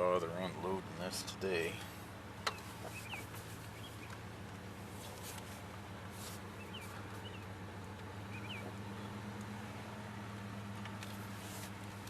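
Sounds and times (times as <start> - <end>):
pickup engine idling: 0.0 - 12.0
bird chirping: 2.5 - 4.2, 6.5 - 7.5, 8.2 - 9.2.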